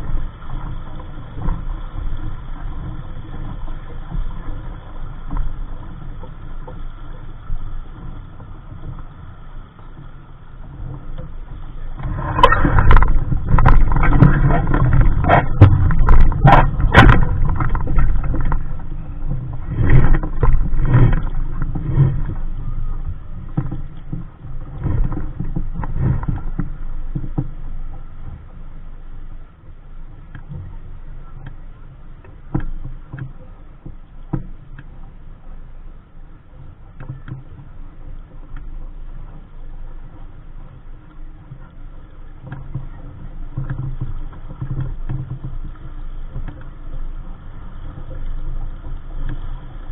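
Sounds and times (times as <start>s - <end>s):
wind buffeting microphone: 0.0s - 29.5s
water splashing along hull: 0.0s - 49.9s
sharp knocks of boat gear: 12.0s - 18.6s.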